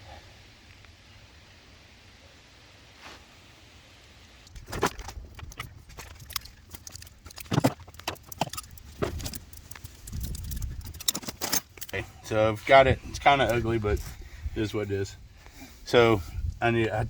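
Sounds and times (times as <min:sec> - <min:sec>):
metal clinks and knocks: 0:04.5 - 0:12.1.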